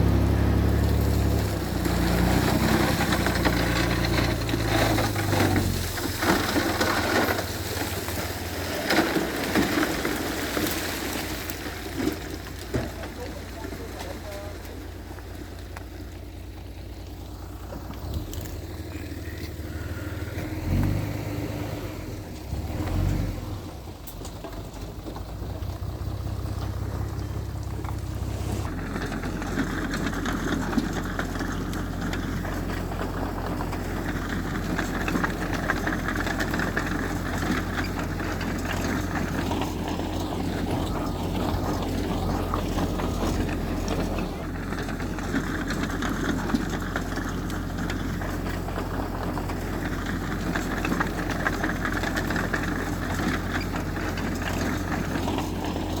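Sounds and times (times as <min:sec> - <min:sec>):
heavy machinery engine running: 0:00.0 - 0:56.0.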